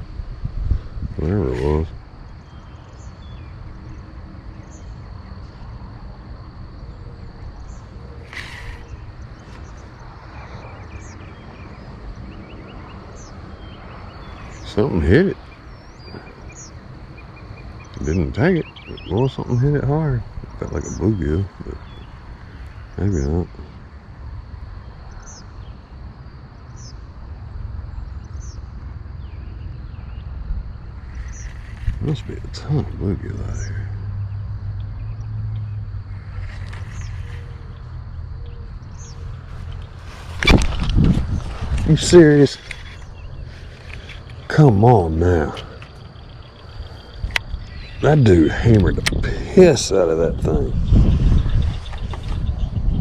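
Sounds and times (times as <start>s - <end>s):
faint high insect-like tone: 0.0s - 53.0s
wind rumbling on microphone: 0.0s - 53.0s
small birds chirping: 0.5s - 24.1s, 24.7s - 27.1s, 27.9s - 53.0s
short hiss: 8.2s - 8.9s.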